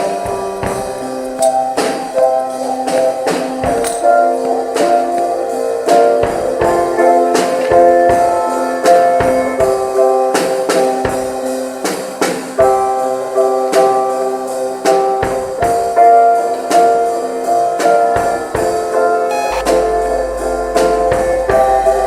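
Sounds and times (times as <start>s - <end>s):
drums and cymbals: 0.0s - 22.0s
piano chords: 16.0s - 22.0s
guitar chords: 19.3s - 22.0s.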